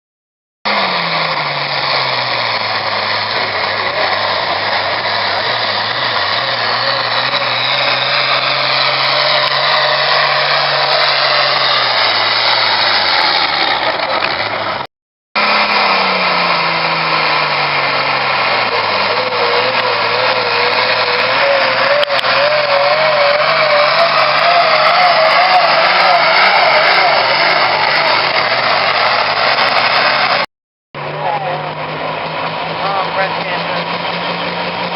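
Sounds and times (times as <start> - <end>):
diesel tractor engine under load: 0.7 - 34.9.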